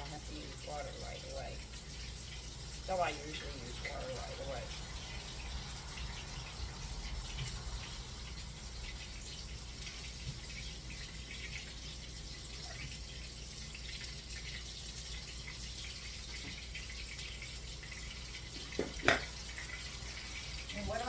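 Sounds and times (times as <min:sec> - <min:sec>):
kitchen tap running: 0:00.0 - 0:21.0.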